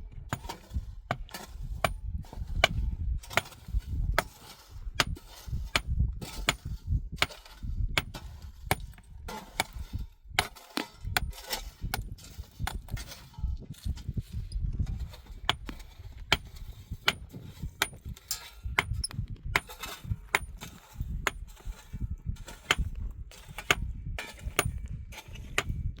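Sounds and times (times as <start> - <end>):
low uneven rumble: 0.0 - 26.0.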